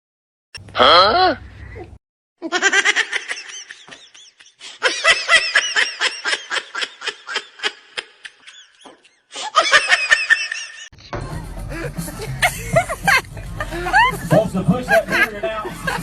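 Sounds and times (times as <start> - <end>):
person laughing hard: 2.4 - 10.9, 11.6 - 16.0.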